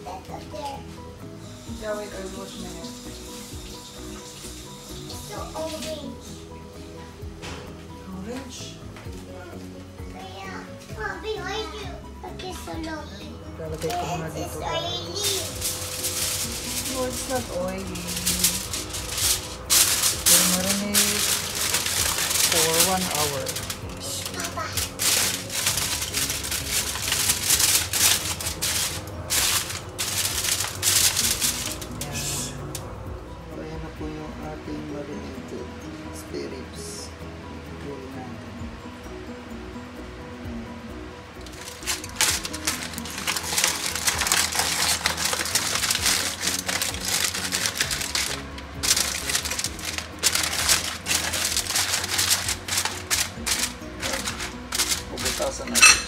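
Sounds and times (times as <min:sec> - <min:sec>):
background music: 0:00.0 - 0:56.0
aluminium foil crinkling: 0:13.6 - 0:32.9, 0:41.4 - 0:56.0.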